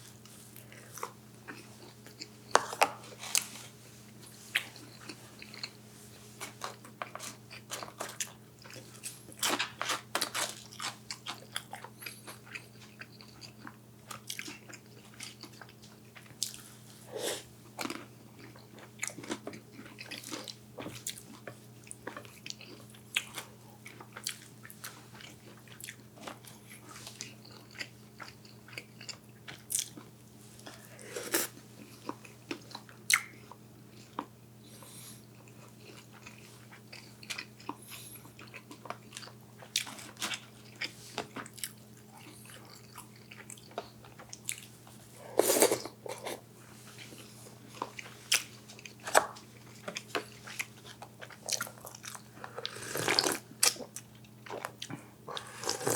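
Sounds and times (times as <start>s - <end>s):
faint steady hum: 0.0s - 55.9s
food crunching: 4.2s - 5.8s, 6.4s - 16.6s, 17.7s - 34.3s, 35.3s - 44.7s, 45.3s - 55.9s
chewing and biting: 6.4s - 16.6s, 17.8s - 30.1s, 45.5s - 55.9s.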